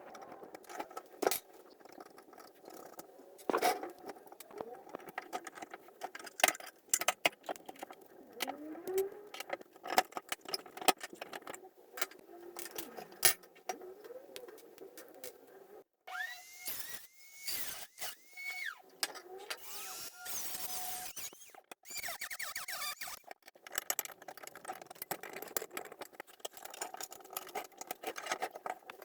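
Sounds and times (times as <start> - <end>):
metal toy truck clinking and rattling: 0.0 - 14.2, 21.0 - 29.0
small power tool spinning: 16.1 - 23.9.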